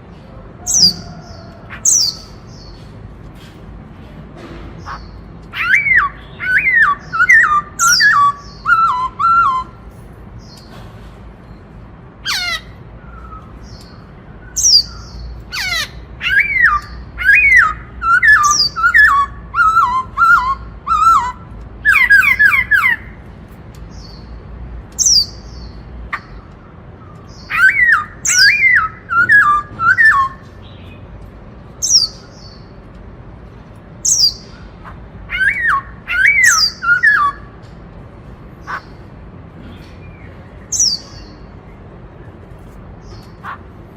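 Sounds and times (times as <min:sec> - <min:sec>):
bird singing whistled notes: 0:05.6 - 0:09.8, 0:16.2 - 0:23.0, 0:27.2 - 0:31.0, 0:35.3 - 0:37.5.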